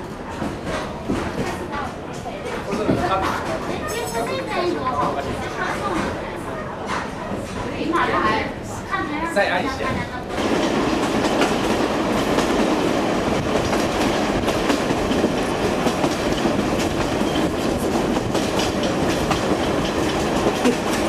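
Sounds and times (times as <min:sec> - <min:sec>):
train rumble: 0:00.0 - 0:09.1, 0:09.7 - 0:21.0
wheels clacking over rail joints: 0:10.3 - 0:21.0.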